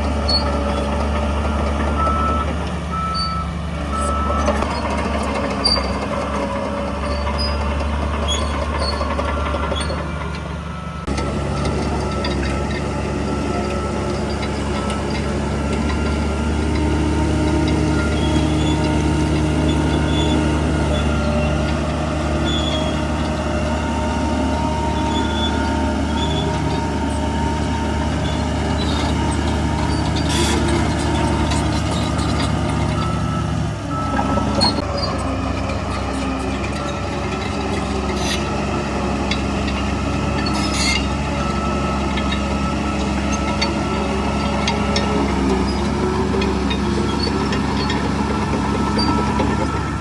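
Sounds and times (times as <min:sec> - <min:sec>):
earthmoving machine diesel engine: 0:00.0 - 0:50.0
high squealing tones: 0:40.3 - 0:49.9.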